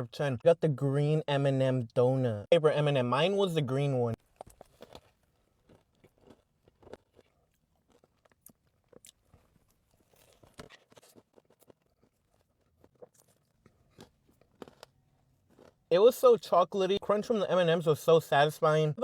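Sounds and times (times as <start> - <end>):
chewing crunchy donut: 4.2 - 16.5.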